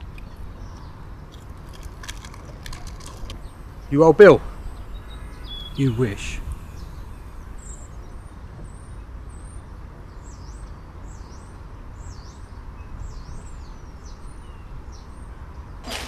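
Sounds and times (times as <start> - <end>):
small bird chirping: 2.4 - 9.6.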